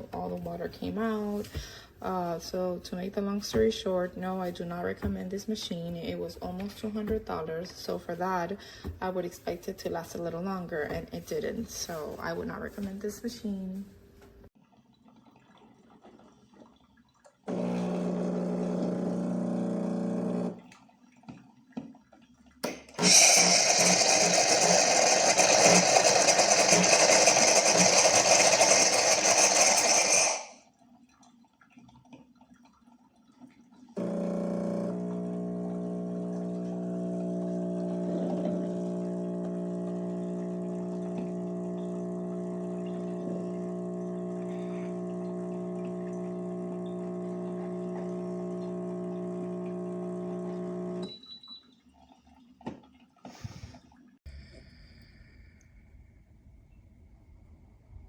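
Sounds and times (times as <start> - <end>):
pump humming: 17.5 - 20.7, 34.0 - 51.5
espresso machine rushing hiss: 23.0 - 30.6.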